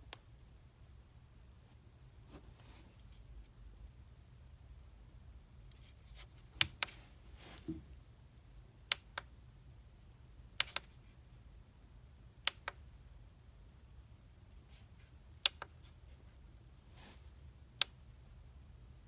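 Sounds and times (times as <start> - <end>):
sharp clicks in pairs: 8.9 - 9.3, 10.6 - 11.0, 12.5 - 12.8, 15.4 - 15.8.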